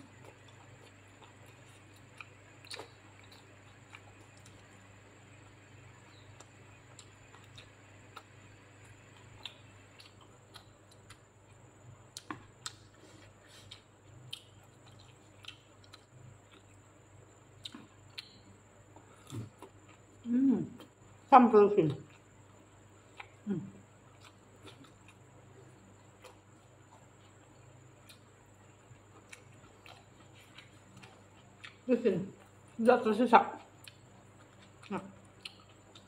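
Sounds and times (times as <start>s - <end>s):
faint chewing: 0.0s - 21.0s, 21.8s - 36.0s.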